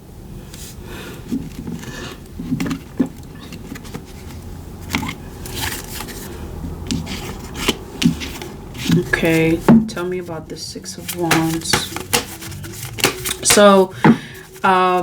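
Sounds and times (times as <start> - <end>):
cards scraping and rustling: 1.7 - 9.7, 10.9 - 15.0
sharp taps: 11.1 - 14.6.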